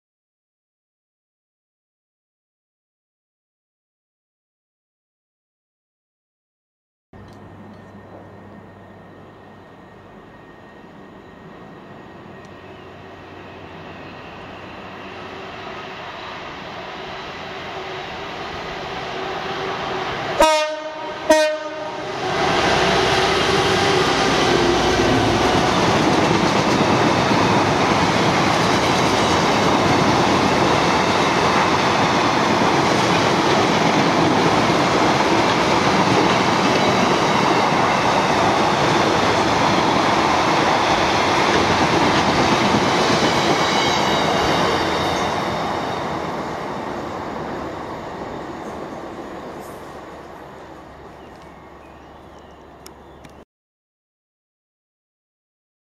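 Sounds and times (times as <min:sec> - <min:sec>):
diesel locomotive engine: 0:07.2 - 0:53.4
rail noise of passing wagons: 0:07.2 - 0:53.4
train horn blasts: 0:20.4 - 0:25.6.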